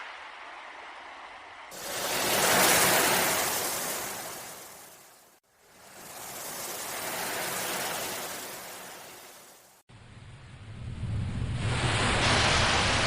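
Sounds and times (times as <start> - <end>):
ocean waves washing in: 0.0 - 13.0.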